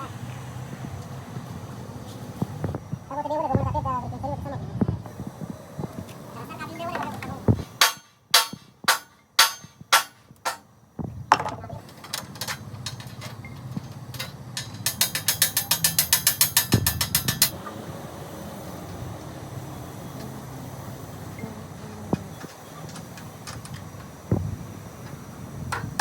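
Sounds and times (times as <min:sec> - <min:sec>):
low workshop hum: 0:00.0 - 0:26.0
rapid ratcheting clicks: 0:13.8 - 0:17.6.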